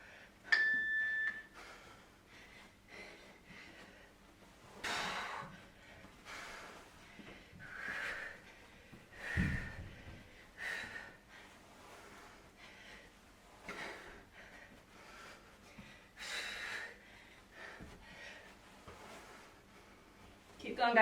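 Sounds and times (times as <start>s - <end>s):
dull low thump: 9.3s - 10.2s.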